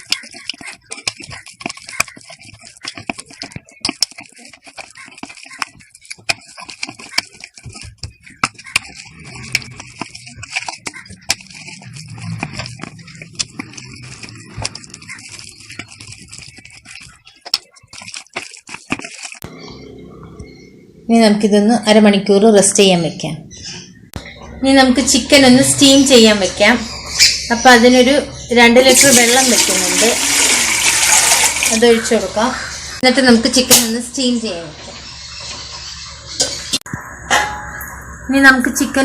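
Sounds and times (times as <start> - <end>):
handling noise: 0.0 - 19.5
sticky squelches of marinating meat: 28.8 - 33.0.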